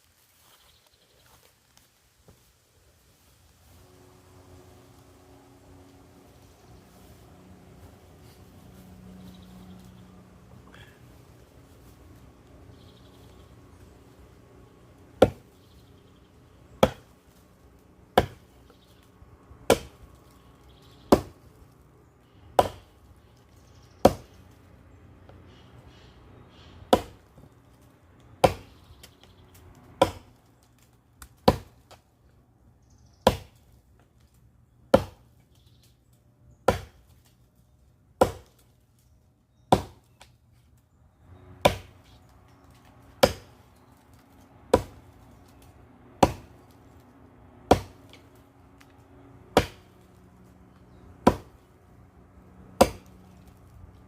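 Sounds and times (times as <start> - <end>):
axe chopping firewood: 15.2 - 15.5, 16.8 - 17.1, 18.1 - 18.5, 19.7 - 20.2, 21.1 - 21.4, 22.5 - 22.9, 24.0 - 24.4, 26.9 - 27.5, 28.4 - 29.1, 29.9 - 32.0, 33.2 - 33.6, 34.9 - 35.3, 36.6 - 37.2, 38.2 - 38.6, 39.7 - 40.3, 41.5 - 46.8, 47.6 - 50.1, 50.7 - 51.6, 52.7 - 53.5.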